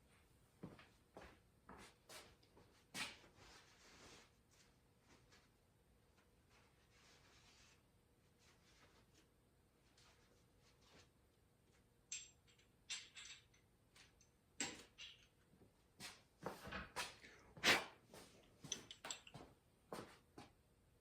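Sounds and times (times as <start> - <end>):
light metal clicks and clinks: 12.1 - 15.4, 18.4 - 19.5.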